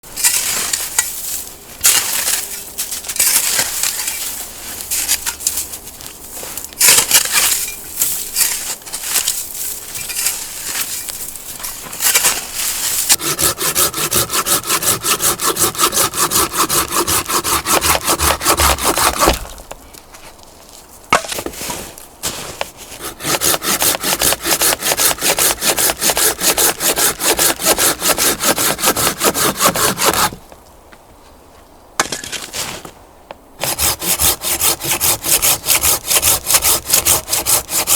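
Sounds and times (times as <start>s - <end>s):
hand saw cutting wood: 13.0s - 19.6s, 22.9s - 30.4s, 33.6s - 37.9s.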